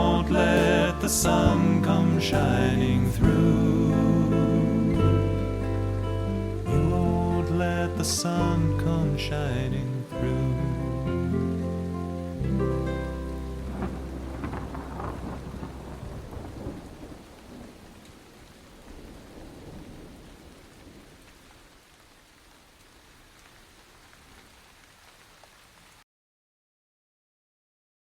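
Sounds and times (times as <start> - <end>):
thunder rumbling: 0.0 - 9.1, 10.2 - 21.8
rain falling: 0.0 - 26.0.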